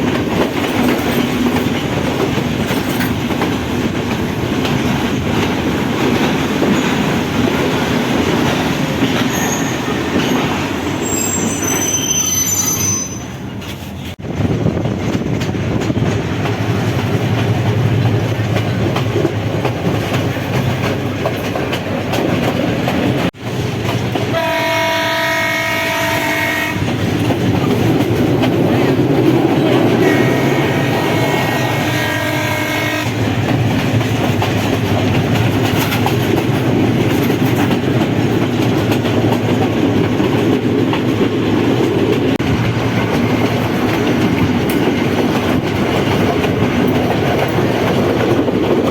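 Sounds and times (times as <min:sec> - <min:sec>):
train rail and wheel noise: 0:00.0 - 0:48.9
locomotive horn blast: 0:24.3 - 0:26.9, 0:30.0 - 0:33.2.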